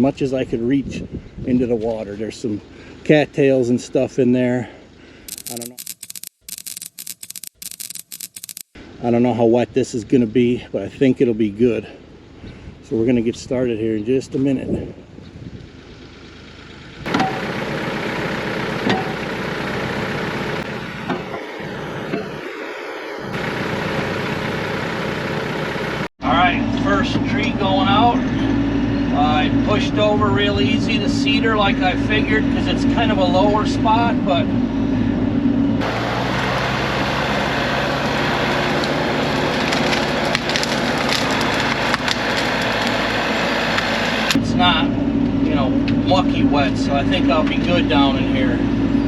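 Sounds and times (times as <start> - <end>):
diesel engine running: 14.4 - 49.0
branches cracking and splintering: 38.4 - 44.4.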